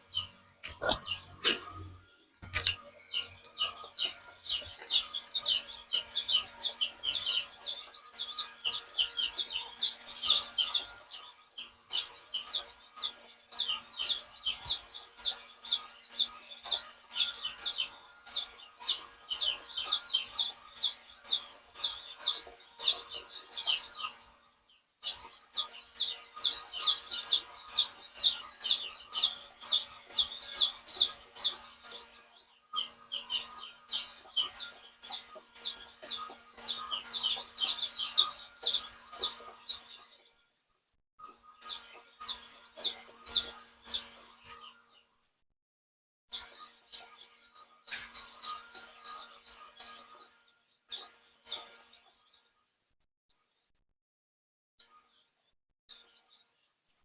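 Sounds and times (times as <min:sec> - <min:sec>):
chicks peeping: 0:00.0 - 0:40.3, 0:41.2 - 0:45.0, 0:46.3 - 0:52.2.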